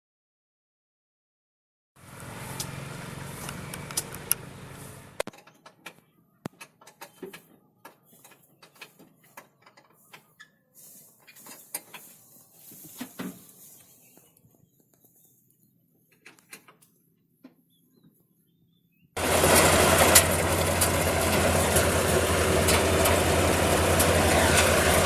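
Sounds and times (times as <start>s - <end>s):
mechanical running noise: 2.2s - 5.2s, 19.2s - 25.0s.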